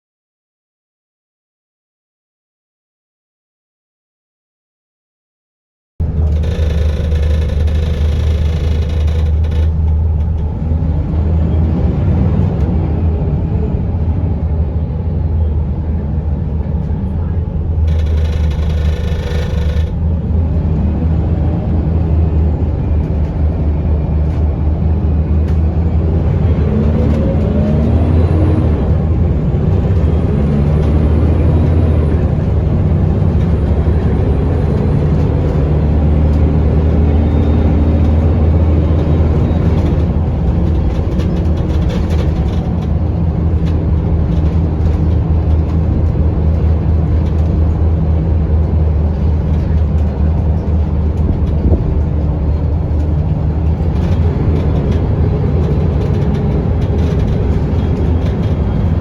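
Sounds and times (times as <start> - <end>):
gearbox whine: 6.0 - 10.8, 17.8 - 20.4, 25.7 - 43.4
bus diesel engine drone: 6.0 - 59.0.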